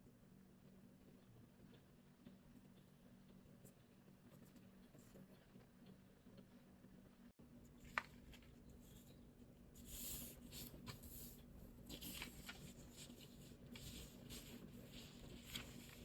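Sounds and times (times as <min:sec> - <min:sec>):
low steady hum: 0:00.0 - 0:16.0
paper rustling and crinkling: 0:07.8 - 0:09.2, 0:09.8 - 0:16.0.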